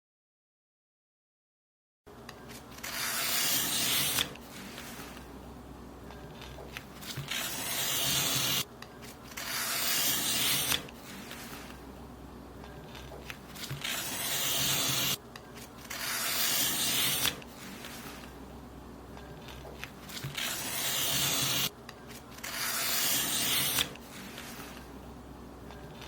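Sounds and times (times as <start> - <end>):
paper being cut: 2.7 - 5.2, 6.4 - 11.8, 12.9 - 15.2, 15.8 - 18.3, 19.5 - 21.7, 22.3 - 24.8.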